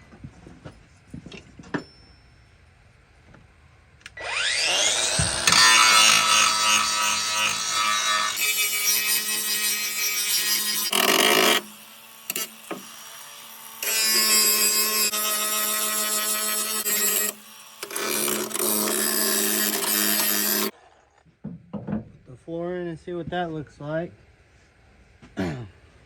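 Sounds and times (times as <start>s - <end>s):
power grinder on sheet steel: 4.2s - 20.7s.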